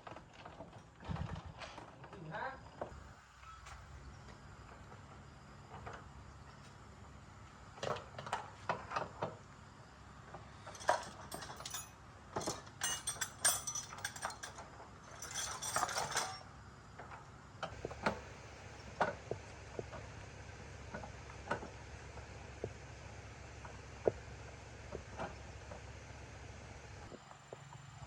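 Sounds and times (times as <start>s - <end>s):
steady low hum: 9.4s - 25.3s
metallic rattling: 10.6s - 16.4s
metal tools clinking: 10.6s - 16.5s.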